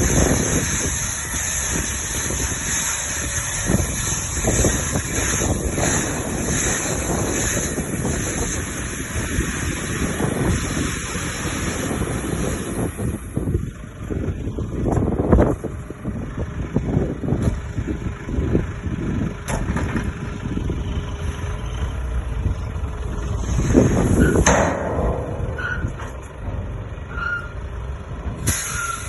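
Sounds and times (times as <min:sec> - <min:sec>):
diesel truck engine rumbling: 0:00.0 - 0:29.0
short hiss: 0:28.4 - 0:29.0.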